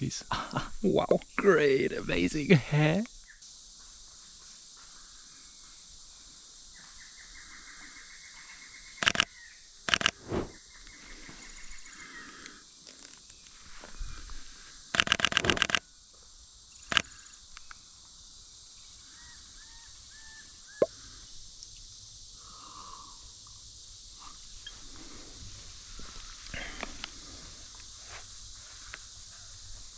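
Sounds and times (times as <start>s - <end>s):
high-pitched insect hiss: 11.4s - 15.8s, 16.4s - 29.9s.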